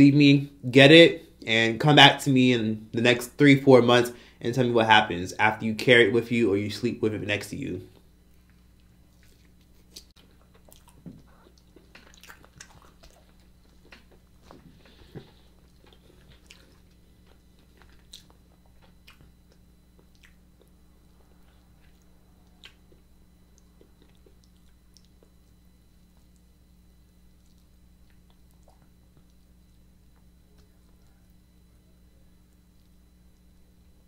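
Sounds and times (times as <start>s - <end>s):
meat crackling as bitten: 8.3s - 26.6s
close chewing of meat: 8.4s - 26.5s.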